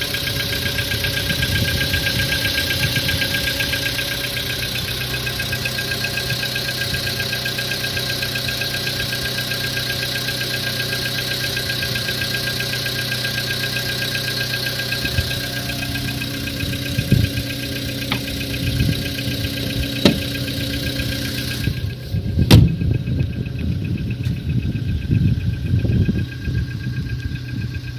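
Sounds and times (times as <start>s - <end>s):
car engine idling with knock: 0.0s - 27.9s
dull thumps: 18.0s - 18.5s, 20.0s - 20.4s, 22.5s - 22.8s.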